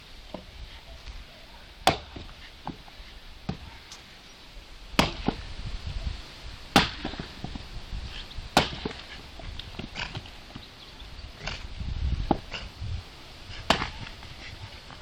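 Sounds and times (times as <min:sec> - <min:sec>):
axe chopping firewood: 0:01.8 - 0:04.0, 0:04.9 - 0:05.6, 0:06.7 - 0:10.7, 0:11.4 - 0:12.7, 0:13.5 - 0:15.0.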